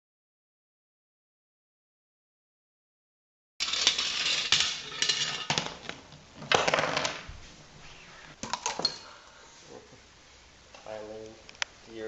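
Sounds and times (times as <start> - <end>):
small hard objects clattering: 3.6 - 7.3.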